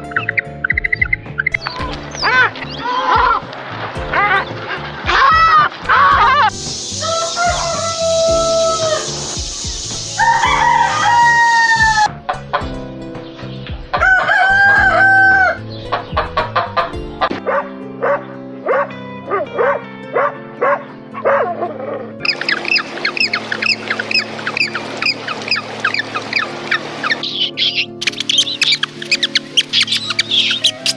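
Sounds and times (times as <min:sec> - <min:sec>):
background music: 0:00.0 - 0:30.9
rooster crowing: 0:07.0 - 0:09.1, 0:10.2 - 0:12.1, 0:14.0 - 0:15.6
high chirps: 0:22.2 - 0:30.9.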